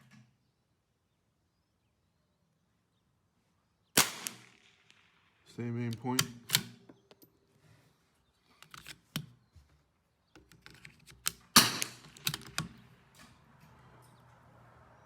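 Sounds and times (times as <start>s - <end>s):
rifle bolt clicking and clacking: 5.8s - 7.4s, 8.6s - 9.4s, 10.4s - 13.3s.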